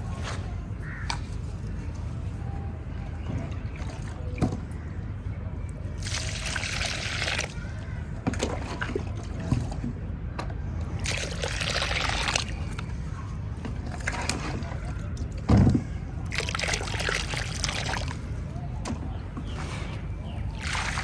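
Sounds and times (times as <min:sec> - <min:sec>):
wet cement mix sloshing: 0:06.0 - 0:09.9, 0:11.0 - 0:21.0.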